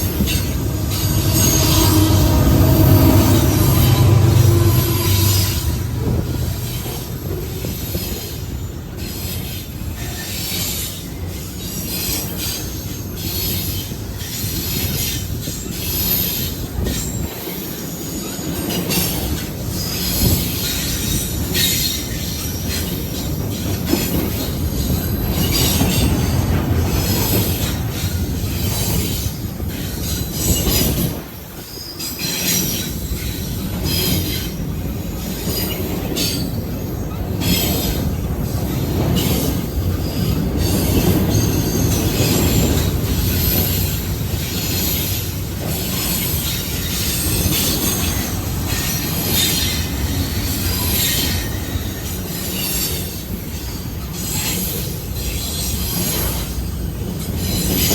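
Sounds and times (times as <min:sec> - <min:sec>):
high wheel squeal: 0:00.0 - 0:09.4, 0:39.0 - 0:57.9
rumble of train wheels on rail: 0:00.0 - 0:57.9.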